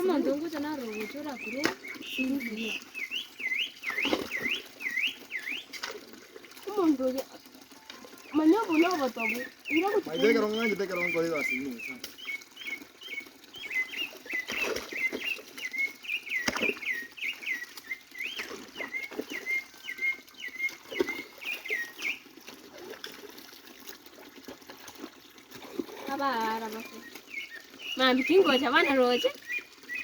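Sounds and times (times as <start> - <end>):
bird chirping: 0.8 - 5.7, 7.8 - 22.2.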